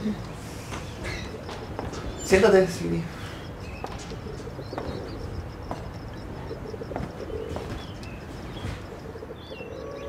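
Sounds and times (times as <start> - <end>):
birds chirping: 0.0 - 10.0
low bird call: 3.1 - 10.0.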